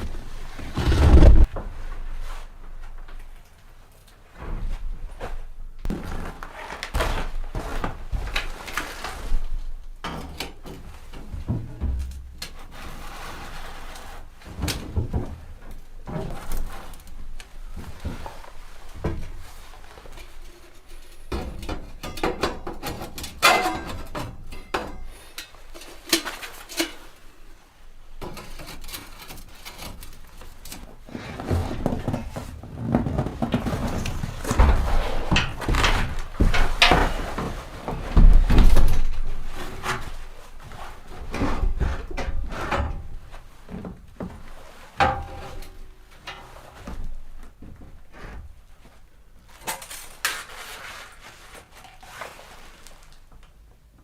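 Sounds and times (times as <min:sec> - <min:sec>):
heavy thumps: 0:00.5 - 0:03.2, 0:11.3 - 0:12.7.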